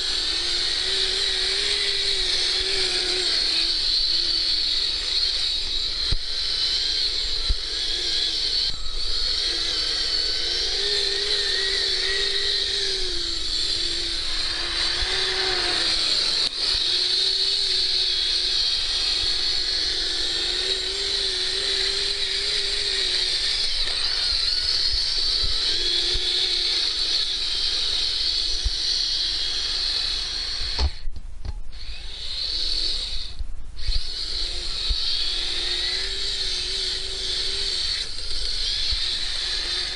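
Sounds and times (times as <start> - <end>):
electric motor and gears whining: 0.0 - 39.9.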